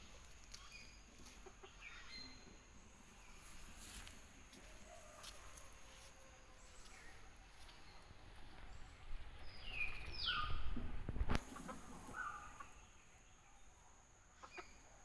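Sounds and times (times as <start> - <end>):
bird calls: 9.4 - 10.7, 11.4 - 13.7.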